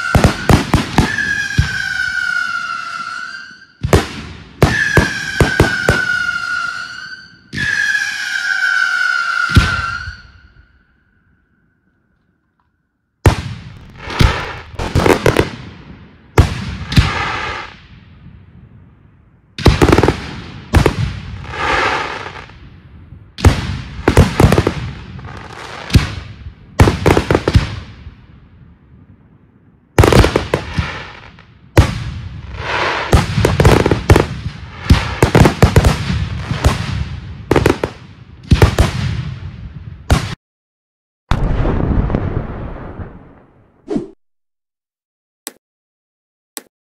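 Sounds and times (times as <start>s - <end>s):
fireworks bursting and crackling: 0.0s - 10.4s, 13.2s - 18.7s, 19.6s - 28.4s, 30.0s - 40.4s.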